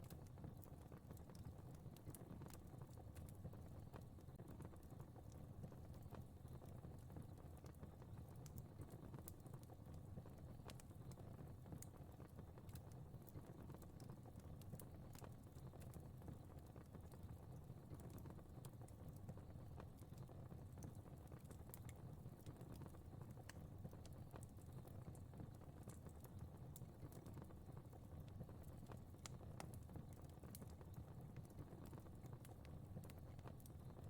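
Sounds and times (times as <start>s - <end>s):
fire crackling in a fireplace: 0.0s - 34.0s.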